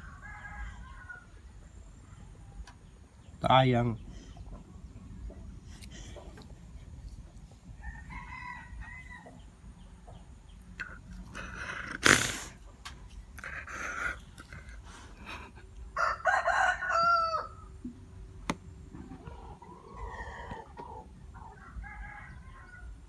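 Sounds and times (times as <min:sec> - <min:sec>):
rooster crowing: 0:00.0 - 0:01.4, 0:07.8 - 0:09.4, 0:15.9 - 0:17.7, 0:21.4 - 0:23.0.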